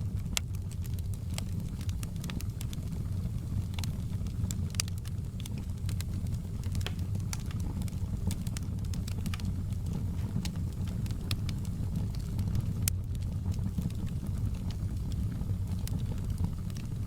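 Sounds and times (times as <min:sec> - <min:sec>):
wood fire crackling: 0:00.0 - 0:17.0
sharp pops and snaps: 0:03.6 - 0:16.9.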